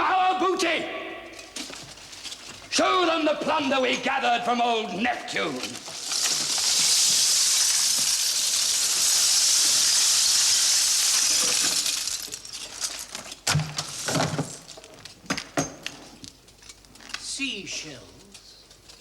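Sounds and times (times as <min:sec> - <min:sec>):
seashells clattering on hard floor: 0:05.6 - 0:17.1.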